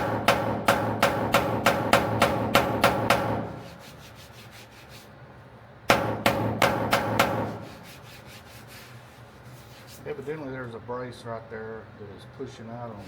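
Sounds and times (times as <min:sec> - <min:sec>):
hammer tapping on sheet metal: 0:00.0 - 0:03.6, 0:05.9 - 0:07.6.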